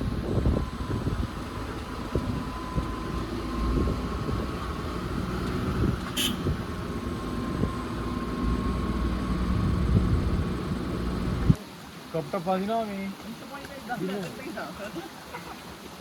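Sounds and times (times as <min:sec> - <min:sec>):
vehicle engine humming: 0:00.0 - 0:11.6.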